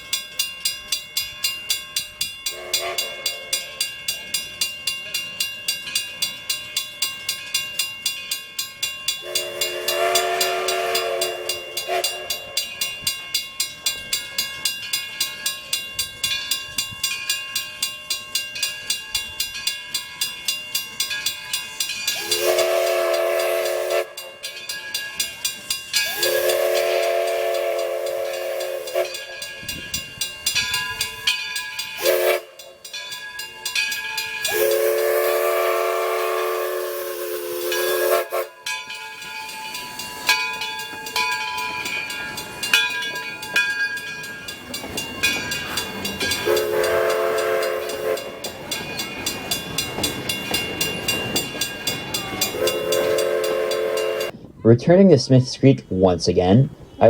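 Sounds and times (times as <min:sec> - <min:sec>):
steam locomotive chime whistle: 0:00.0 - 0:54.4
steam hissing: 0:09.1 - 0:17.8, 0:20.5 - 0:54.4
locomotive exhaust chuffing: 0:22.1 - 0:54.4.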